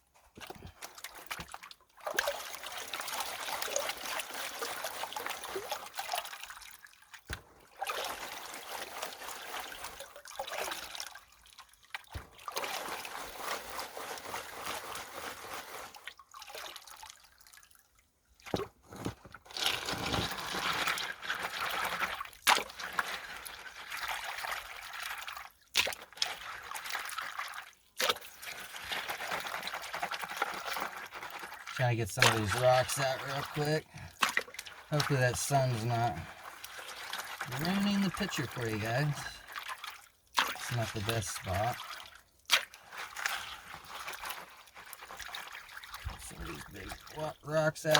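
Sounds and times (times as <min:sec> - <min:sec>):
water sloshing and trickling: 0:00.0 - 0:47.9.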